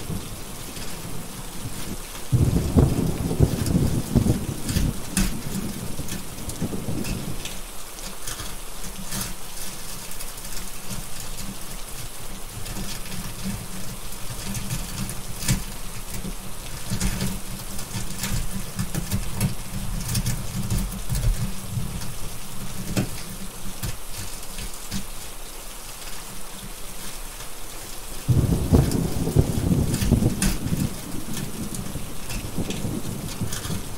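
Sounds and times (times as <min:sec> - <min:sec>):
thunder rumbling: 0:00.0 - 0:07.5, 0:28.2 - 0:33.9
steady rain: 0:00.0 - 0:33.9.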